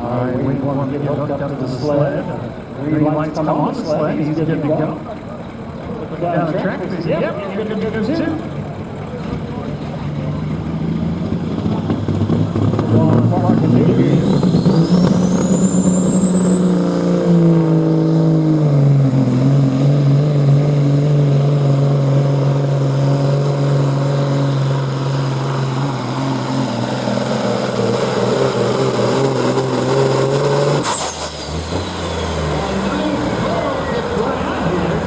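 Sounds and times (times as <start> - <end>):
truck diesel engine full throttle: 0.0 - 35.0
turbo whistle: 14.1 - 31.6.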